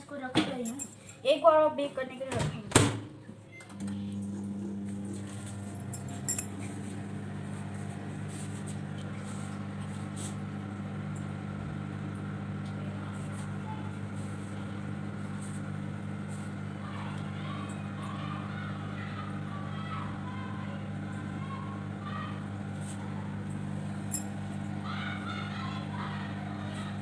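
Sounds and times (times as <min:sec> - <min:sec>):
microwave oven humming: 0:00.0 - 0:27.0
light clinks: 0:00.6 - 0:01.2, 0:05.7 - 0:06.5, 0:24.1 - 0:24.3.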